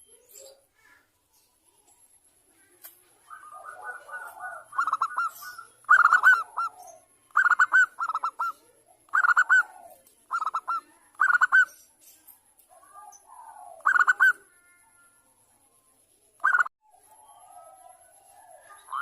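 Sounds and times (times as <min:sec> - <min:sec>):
dove cooing: 0:02.6 - 0:11.7, 0:12.7 - 0:14.8, 0:16.4 - 0:19.0
low warbling bird call: 0:03.2 - 0:11.7.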